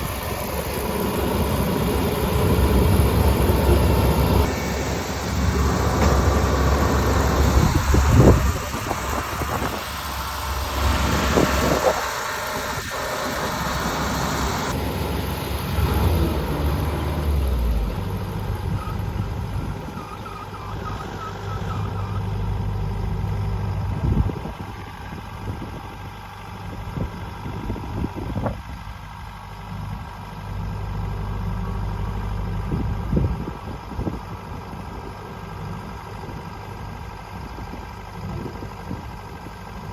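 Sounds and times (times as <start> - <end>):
motor engine running: 0.0 - 19.8.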